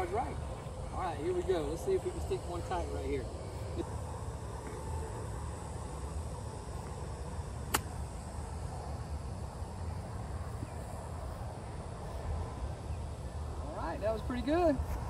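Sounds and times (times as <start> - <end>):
golf club striking ball: 7.7 - 8.0.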